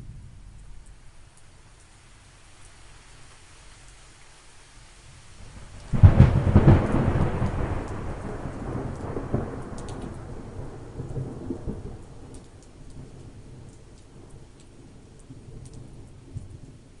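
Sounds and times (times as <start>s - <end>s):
rain hissing: 0.0s - 17.0s
thunderclap rumbling: 5.5s - 16.5s.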